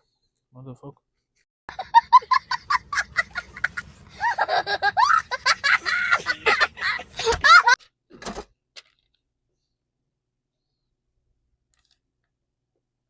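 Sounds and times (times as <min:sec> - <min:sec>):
person laughing: 0:01.7 - 0:07.8.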